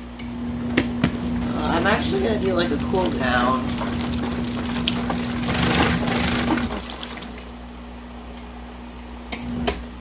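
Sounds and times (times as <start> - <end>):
washing machine motor hum: 0.0 - 10.0
water sloshing in tub: 1.2 - 7.6.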